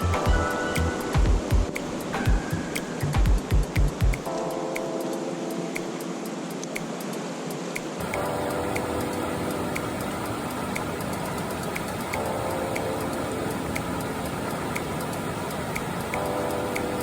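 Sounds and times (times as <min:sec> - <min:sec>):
faint tick: 0:07.8 - 0:17.0.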